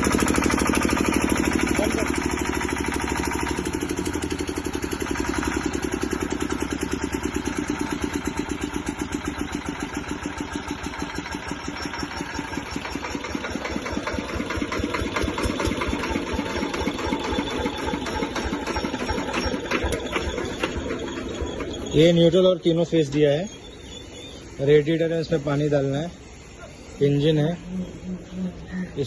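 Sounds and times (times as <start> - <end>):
diesel generator running: 0.0 - 29.0.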